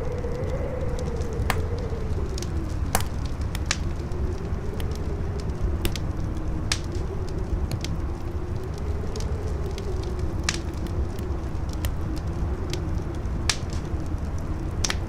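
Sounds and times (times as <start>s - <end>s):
campfire crackling and popping: 0.0s - 15.0s
howling wind: 0.0s - 15.0s.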